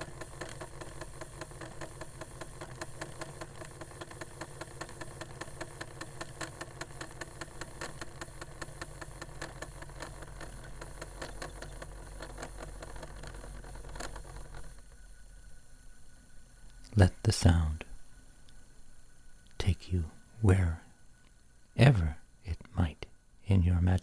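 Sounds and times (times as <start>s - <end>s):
rapid rattling clicks: 0.0s - 15.0s
cd player motor whirring: 0.0s - 16.9s.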